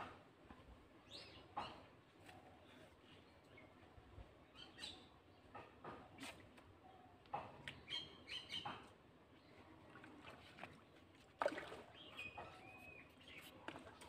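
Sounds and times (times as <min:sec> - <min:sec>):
small birds chirping: 0:02.6 - 0:05.6, 0:06.8 - 0:09.8, 0:11.9 - 0:14.0.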